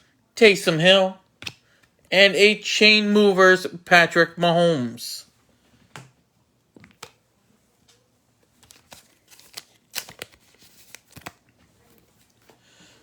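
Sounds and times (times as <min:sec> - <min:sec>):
foil wrapping crinkling: 0:08.6 - 0:12.3.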